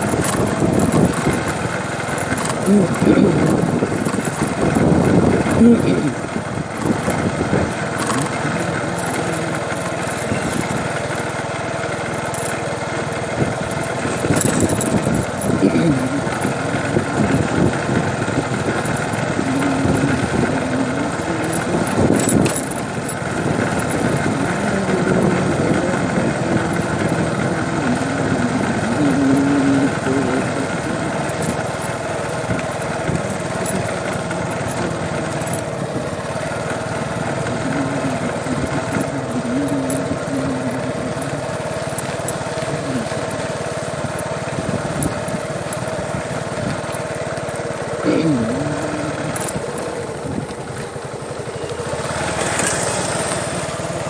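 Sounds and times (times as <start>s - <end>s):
faint voices: 0.0s - 54.0s
small engine running: 0.0s - 54.0s.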